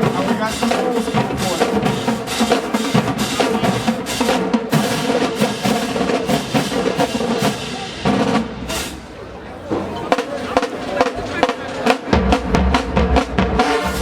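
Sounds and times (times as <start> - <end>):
fast drum hits: 0.0 - 8.5
marching band playing: 0.0 - 14.0.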